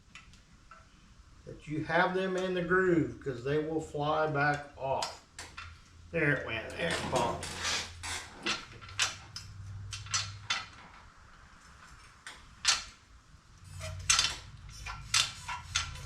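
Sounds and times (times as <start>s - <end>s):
steel parts and tools clinking: 6.7s - 11.0s, 11.6s - 13.0s, 13.6s - 16.0s.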